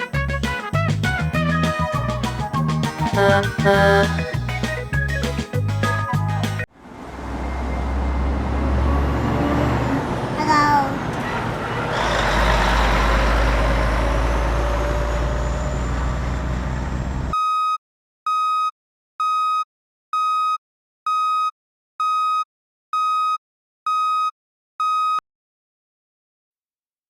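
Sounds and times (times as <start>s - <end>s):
truck engine: 0.0s - 17.3s
reversing beeper beeps: 7.2s - 9.6s.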